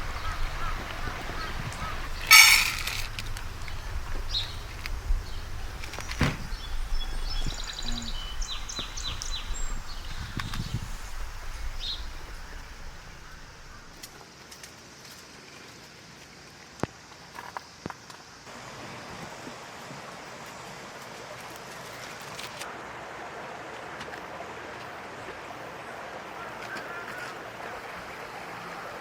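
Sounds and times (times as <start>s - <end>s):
small bird chirping: 0.0s - 14.0s
outdoor background noise: 0.0s - 29.0s.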